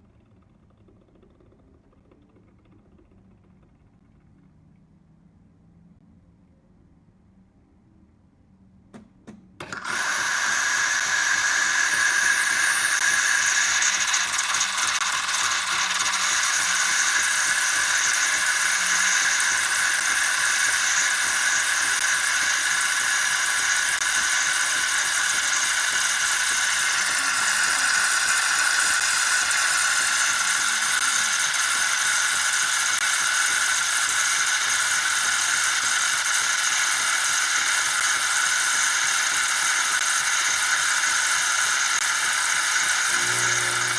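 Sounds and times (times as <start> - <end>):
espresso machine hissing: 9.6 - 43.9
high whine: 43.1 - 43.9.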